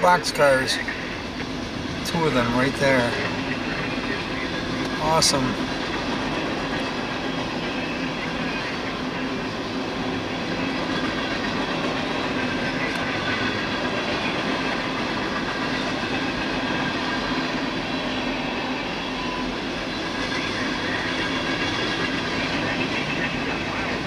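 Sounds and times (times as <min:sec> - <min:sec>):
freight train wheels on rails: 0:00.0 - 0:18.8.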